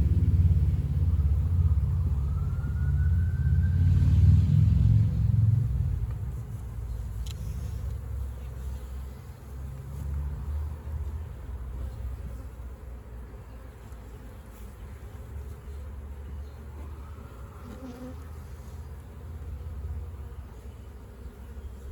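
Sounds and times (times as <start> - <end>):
low rumble: 0.0 - 8.2
honeybees buzzing: 5.0 - 21.9.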